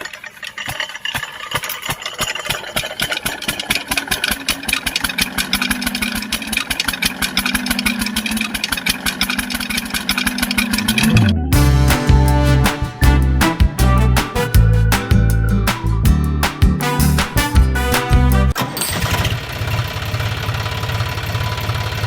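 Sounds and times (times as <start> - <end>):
tractor engine idling: 17.0 - 22.0.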